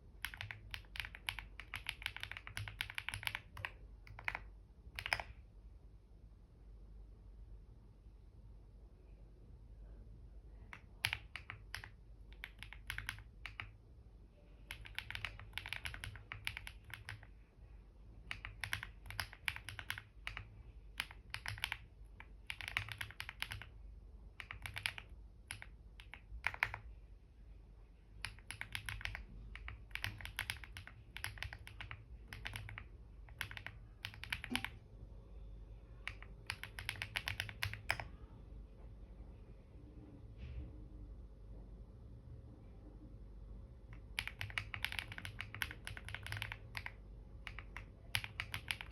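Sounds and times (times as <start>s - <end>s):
typing on a keyboard: 0.2s - 5.4s, 10.7s - 13.8s, 14.6s - 17.3s, 18.2s - 23.8s, 24.4s - 26.9s, 28.2s - 34.8s, 36.0s - 38.1s, 44.0s - 48.9s.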